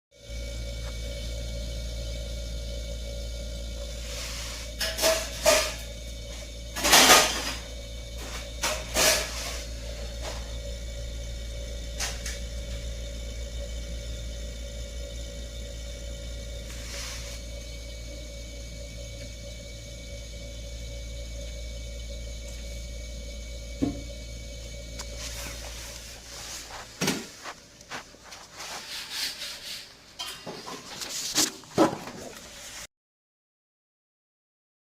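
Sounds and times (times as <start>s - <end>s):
compressor humming: 0.2s - 32.9s
rubbing sounds: 25.0s - 30.1s, 30.7s - 32.8s.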